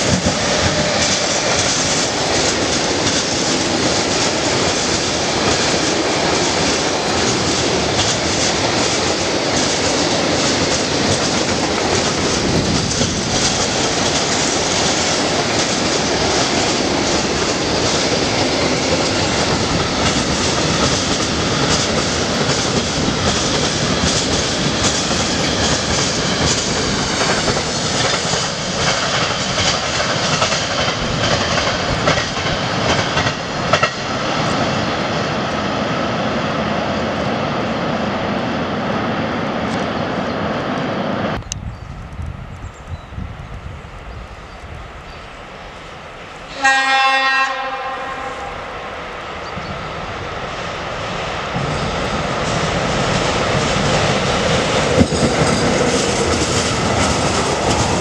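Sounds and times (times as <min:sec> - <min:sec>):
clickety-clack over rail joints: 0:00.0 - 0:35.6, 0:51.1 - 0:58.0
train wheels rumbling on rail: 0:00.0 - 0:58.0.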